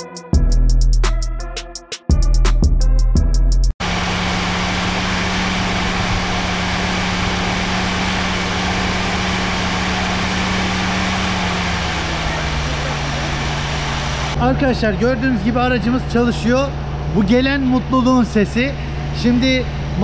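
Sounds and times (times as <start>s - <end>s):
music: 0.0s - 3.8s
car engine running: 3.8s - 20.0s.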